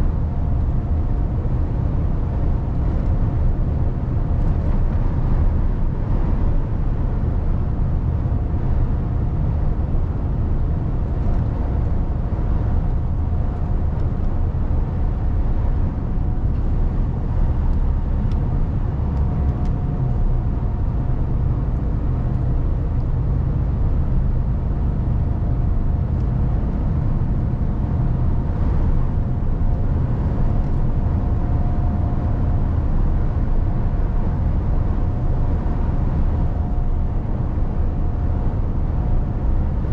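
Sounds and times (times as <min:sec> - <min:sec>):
road noise: 0:00.0 - 0:39.9
truck diesel engine drone: 0:00.0 - 0:39.9.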